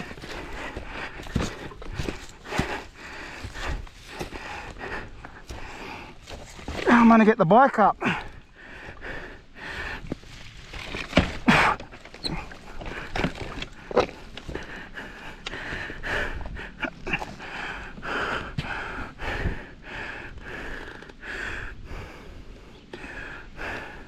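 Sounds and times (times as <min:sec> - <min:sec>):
person breathing hard and straining: 0:00.0 - 0:07.0, 0:07.8 - 0:24.0
boots and bike scraping ground: 0:00.0 - 0:07.5, 0:10.0 - 0:14.7.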